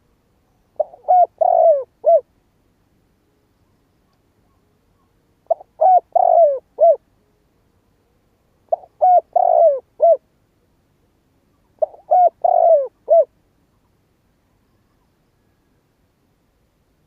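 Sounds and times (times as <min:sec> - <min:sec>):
dove cooing: 0:00.8 - 0:02.3, 0:04.4 - 0:07.0, 0:08.7 - 0:10.2, 0:11.8 - 0:13.3.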